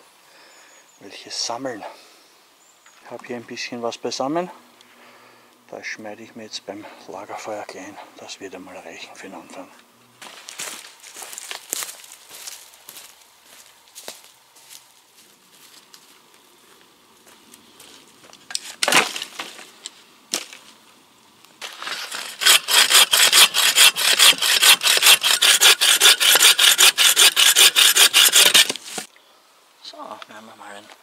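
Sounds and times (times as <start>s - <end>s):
wood cracking: 18.4s - 20.8s, 21.6s - 29.1s
hand saw cutting branch: 21.6s - 29.1s.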